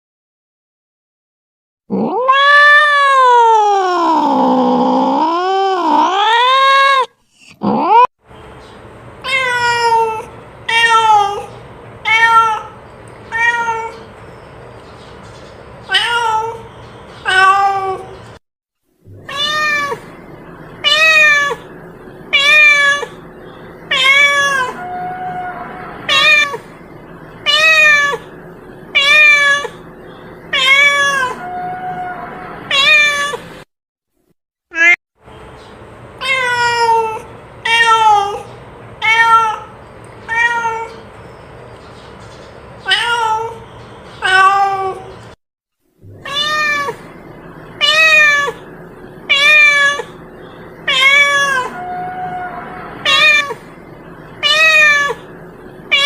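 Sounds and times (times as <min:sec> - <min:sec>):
cat meowing: 0:01.9 - 0:08.1, 0:09.2 - 0:14.1, 0:15.9 - 0:18.2, 0:19.1 - 0:20.1, 0:20.8 - 0:21.7, 0:22.3 - 0:23.2, 0:23.9 - 0:26.6, 0:27.4 - 0:28.3, 0:28.9 - 0:29.8, 0:30.5 - 0:33.4, 0:36.2 - 0:41.0, 0:42.8 - 0:43.6, 0:44.2 - 0:45.1, 0:46.1 - 0:47.1, 0:47.8 - 0:48.7, 0:49.3 - 0:50.2, 0:50.8 - 0:53.7, 0:54.4 - 0:55.3.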